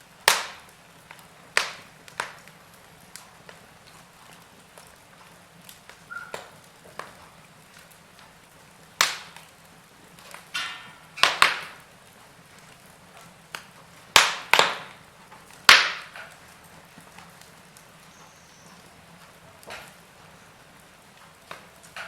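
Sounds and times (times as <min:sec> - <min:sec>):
log fire crackling: 0:00.0 - 0:22.0.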